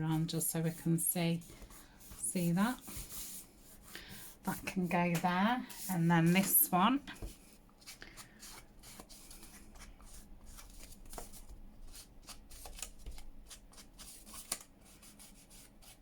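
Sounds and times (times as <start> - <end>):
paper rustling and sliding: 1.4 - 6.6.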